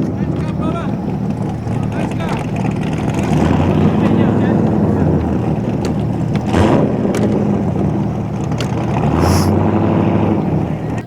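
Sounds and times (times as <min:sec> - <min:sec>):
car engine running: 0:00.0 - 0:09.2
short hiss: 0:09.2 - 0:09.6.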